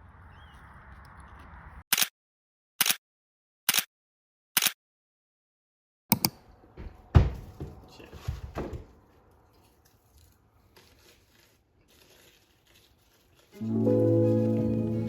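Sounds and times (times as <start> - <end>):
thump: 6.8 - 7.8
handling knocks and rustling: 6.8 - 13.6.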